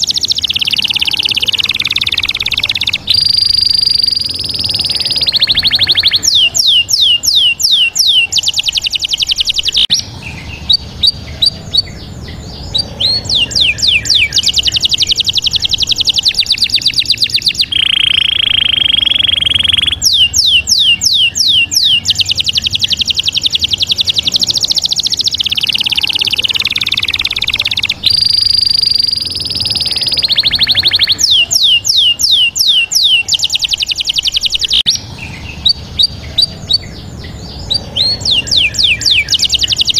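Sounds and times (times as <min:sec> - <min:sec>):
bird song whistles and trills: 0:00.0 - 0:39.9.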